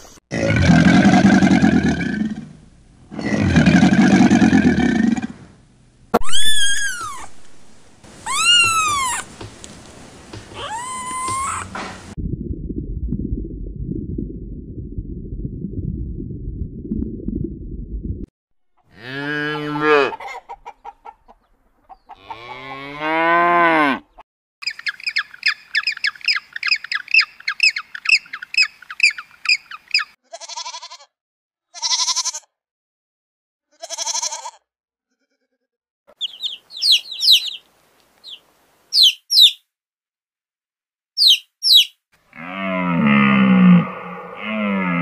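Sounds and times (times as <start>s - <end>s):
short high calls: 6.2s - 7.4s, 8.2s - 9.3s, 10.5s - 11.8s, 36.2s - 37.6s, 38.2s - 39.6s, 41.2s - 41.9s
cow mooing: 18.9s - 20.2s, 22.2s - 24.1s, 42.3s - 45.0s
sheep bleating: 30.2s - 31.1s, 31.7s - 32.5s, 33.7s - 35.7s
chicks peeping: 36.2s - 39.6s, 41.2s - 41.9s.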